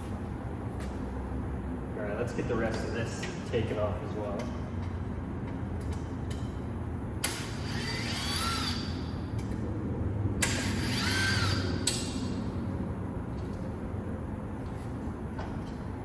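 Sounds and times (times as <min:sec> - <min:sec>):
power tool motor whine: 0:07.4 - 0:09.0, 0:10.4 - 0:11.9.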